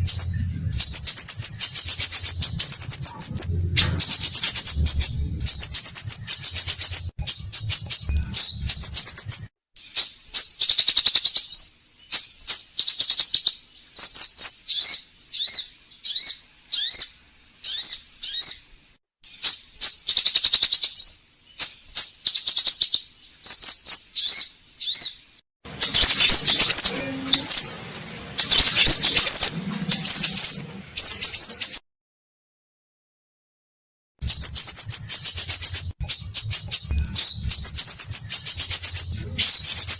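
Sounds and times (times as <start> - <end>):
bird chirping and whistling: 0.0 - 18.6, 19.2 - 27.8, 28.4 - 31.8, 34.2 - 39.9.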